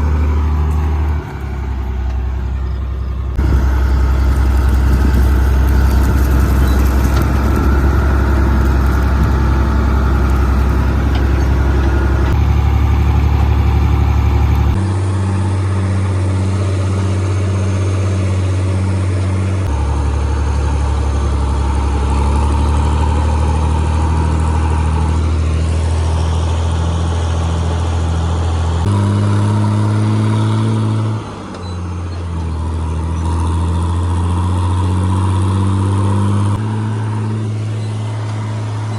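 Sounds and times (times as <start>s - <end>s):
farm machinery engines running: 0.0s - 38.9s.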